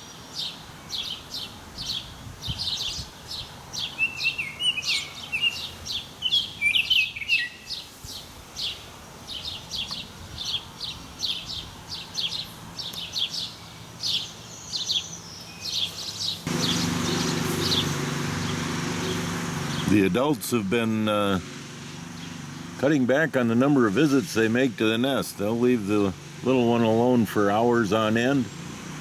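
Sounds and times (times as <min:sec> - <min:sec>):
lower quickly stepping bird notes: 0:00.0 - 0:20.1
birds chirping: 0:00.0 - 0:29.0.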